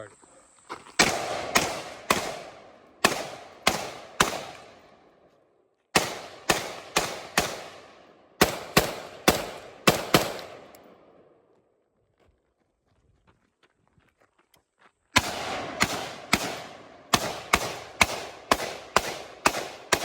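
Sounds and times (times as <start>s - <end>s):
rifle shots echoing: 1.0s - 5.2s, 5.9s - 11.4s, 15.2s - 20.0s.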